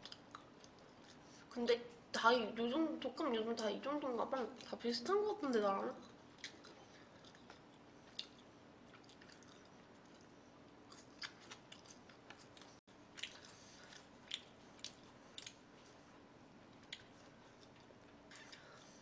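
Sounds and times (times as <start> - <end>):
person chewing food: 0.0 - 1.3, 6.0 - 16.0, 16.7 - 19.0
faint room hiss: 0.0 - 19.0
mouth clicks and smacks: 6.4 - 10.3.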